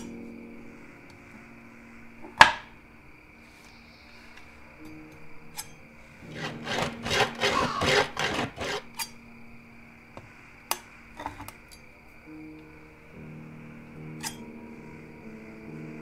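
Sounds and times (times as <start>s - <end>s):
faint steady hum: 0.0s - 7.0s.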